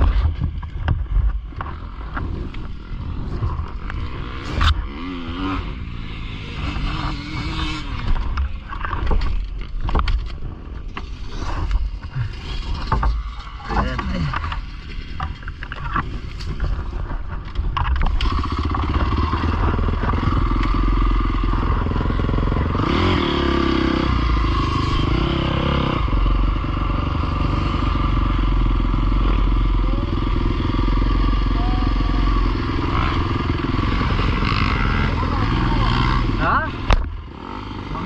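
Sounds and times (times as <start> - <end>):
pit bike engine revving: 1.6 - 9.0, 18.1 - 38.0.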